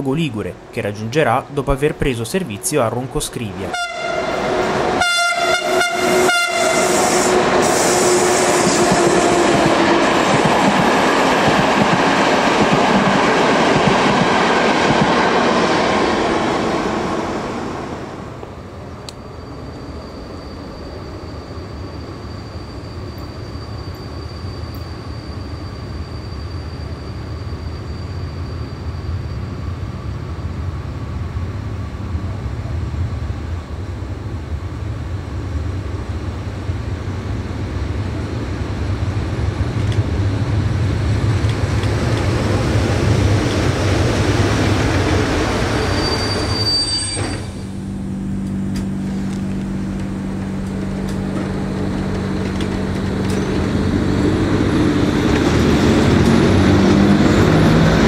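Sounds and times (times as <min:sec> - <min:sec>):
train running on rails: 0:00.0 - 0:58.0
high-pitched wheel squeal: 0:19.2 - 0:29.7, 0:45.8 - 0:47.8.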